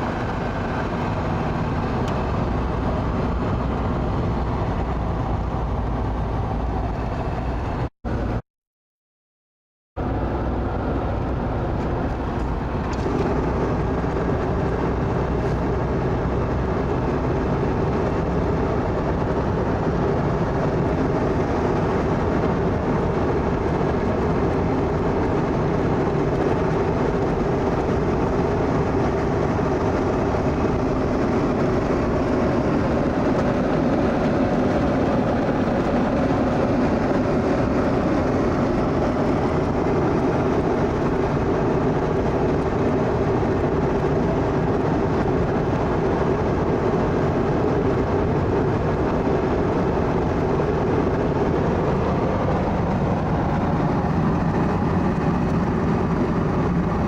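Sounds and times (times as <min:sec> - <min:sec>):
vehicle steady rumble: 0:00.0 - 0:08.4, 0:10.0 - 0:57.0.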